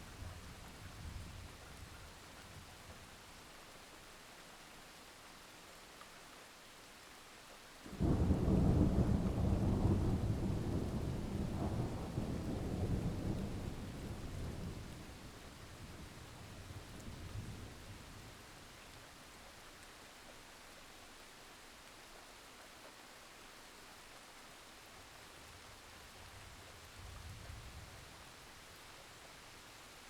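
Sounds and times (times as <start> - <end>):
heavy rain: 6.6 - 22.5.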